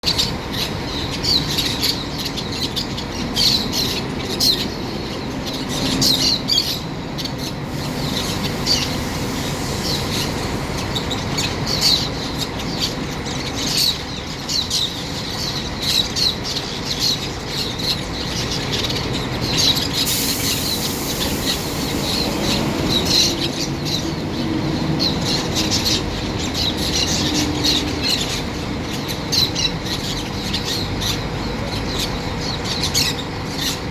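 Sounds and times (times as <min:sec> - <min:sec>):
birds squawking: 0:00.0 - 0:33.9
city traffic rumble: 0:00.0 - 0:33.9
brief hiss: 0:07.7 - 0:10.8, 0:20.0 - 0:23.9.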